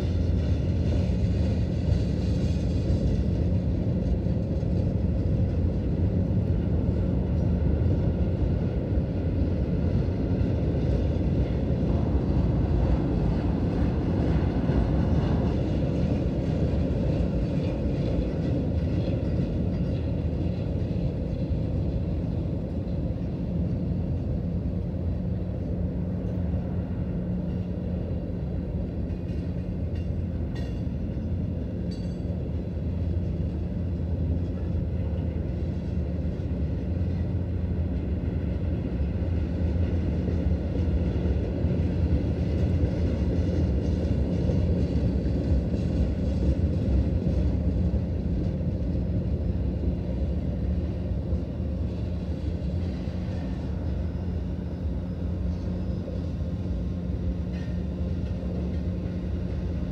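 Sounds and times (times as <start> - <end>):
wheels rumbling on rail: 0.0 - 59.9.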